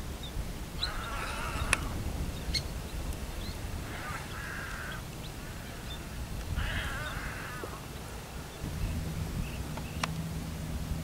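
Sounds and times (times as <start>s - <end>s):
bird croaking: 0.8s - 2.6s, 3.8s - 10.0s.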